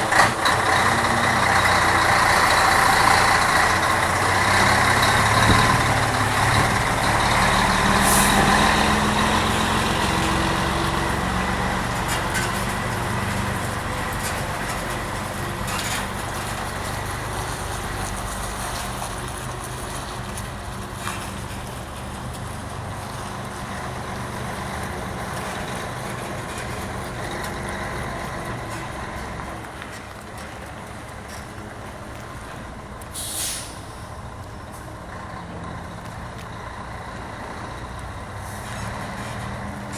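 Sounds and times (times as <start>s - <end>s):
diesel truck engine running: 0.0s - 39.9s
brief hiss: 33.1s - 34.1s.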